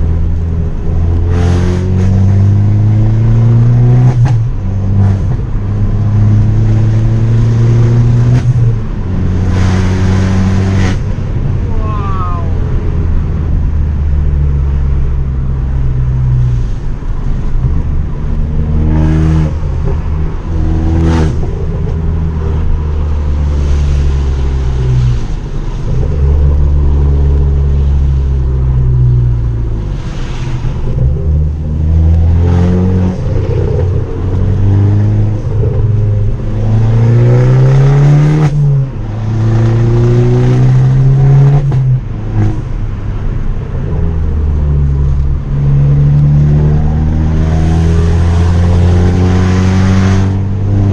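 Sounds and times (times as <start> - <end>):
car engine revving hard: 1.0 - 5.4, 9.3 - 11.1, 45.8 - 50.9.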